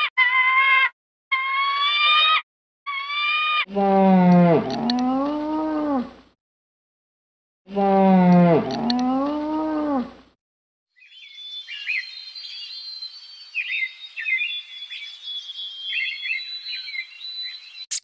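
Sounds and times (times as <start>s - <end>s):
small birds chirping: 11.0s - 18.0s.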